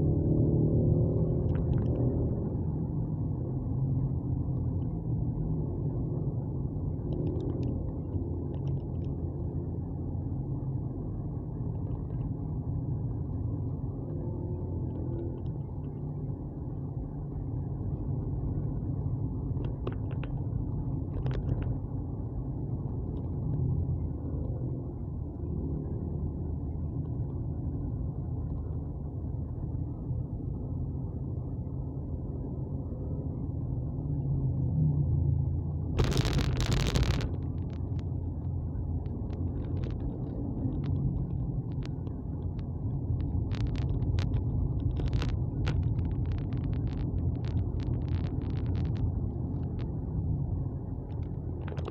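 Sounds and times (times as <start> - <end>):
vehicle rumble on board: 0.0 - 51.9
loud rush of noise: 36.0 - 37.8.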